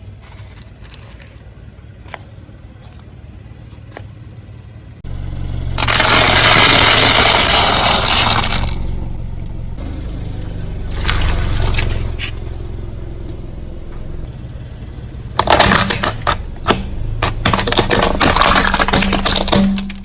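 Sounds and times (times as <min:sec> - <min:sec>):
car engine running low: 0:00.2 - 0:20.0
tyre crushing crunchy objects: 0:05.2 - 0:08.9, 0:15.3 - 0:20.0.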